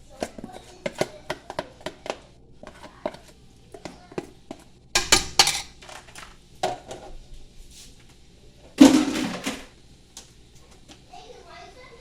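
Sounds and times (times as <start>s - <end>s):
utensils clinking on cookware: 0.2s - 7.1s.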